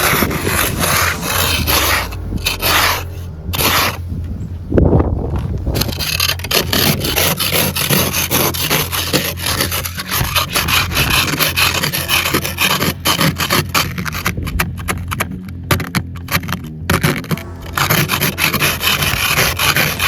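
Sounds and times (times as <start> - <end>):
scraper scraping snow and ice: 0.0 - 4.0, 5.8 - 14.6, 17.1 - 20.0.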